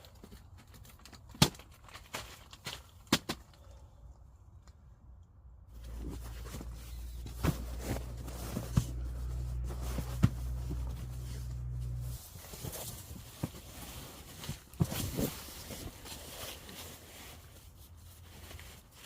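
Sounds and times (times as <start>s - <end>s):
steady low hum: 4.3s - 12.9s.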